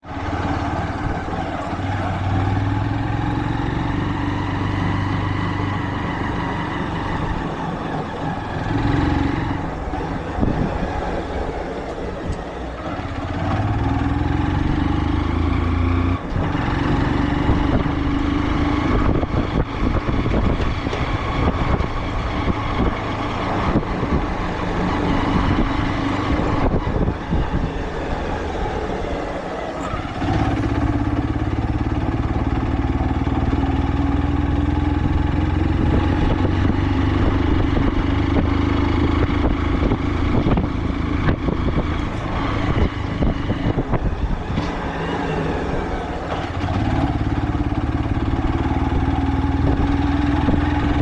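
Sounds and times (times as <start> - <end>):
vehicle engine while driving: 0.0 - 51.0.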